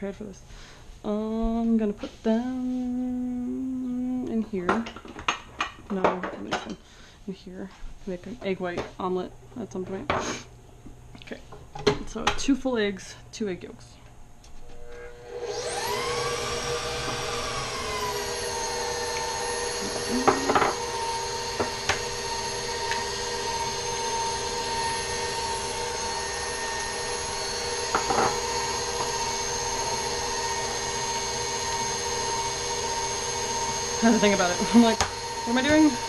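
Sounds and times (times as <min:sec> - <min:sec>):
stand mixer motor whine: 0:14.6 - 0:36.0.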